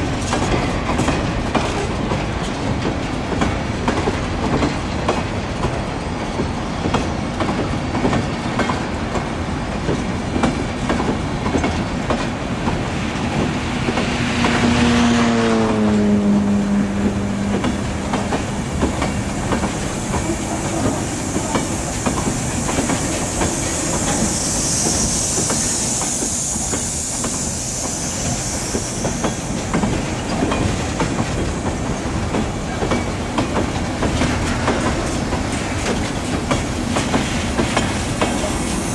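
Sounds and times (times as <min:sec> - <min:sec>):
train wheels clattering: 0:00.0 - 0:38.9
high hiss: 0:18.1 - 0:32.3, 0:36.4 - 0:38.9.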